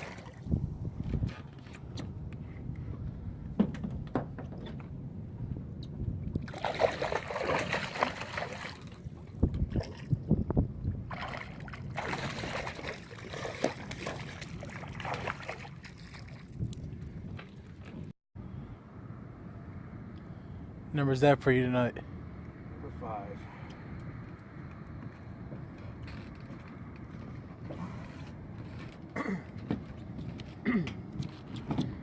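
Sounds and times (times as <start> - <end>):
water sloshing and splashing: 0.0 - 1.7, 6.3 - 18.1.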